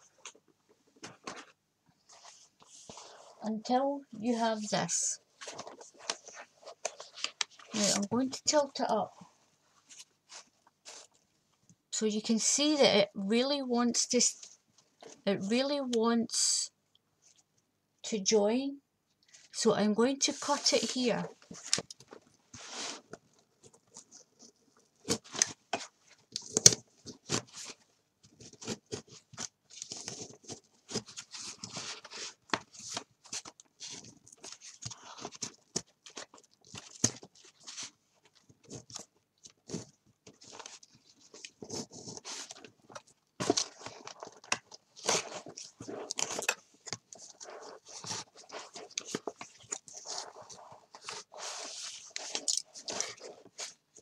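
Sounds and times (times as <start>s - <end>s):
paper rustling: 5.3s - 8.9s, 20.3s - 54.0s.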